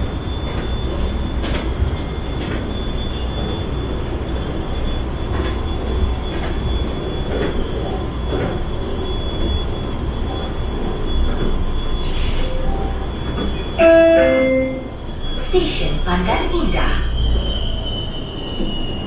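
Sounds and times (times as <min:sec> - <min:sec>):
wheels rumbling on rail: 0:00.0 - 0:19.0
thin high tone: 0:13.8 - 0:15.6.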